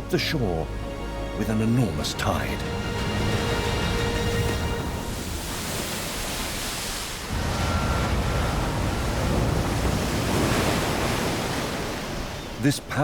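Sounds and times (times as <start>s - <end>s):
ocean waves washing ashore: 0.9s - 13.0s.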